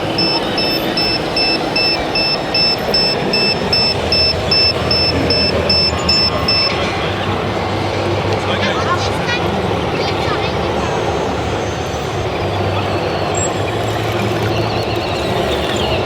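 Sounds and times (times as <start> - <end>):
electronic reversing beeps: 0.0 - 6.8.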